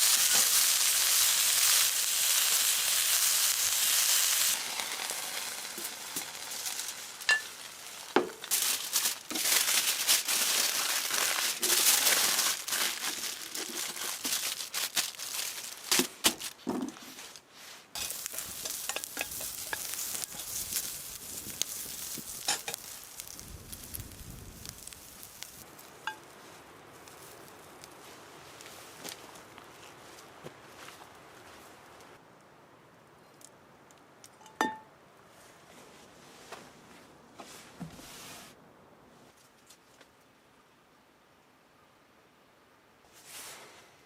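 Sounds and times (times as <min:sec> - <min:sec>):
steady sizzling: 0:00.0 - 0:15.9, 0:18.0 - 0:26.4
sharp crackles and clicks: 0:00.0 - 0:16.6, 0:18.0 - 0:28.0.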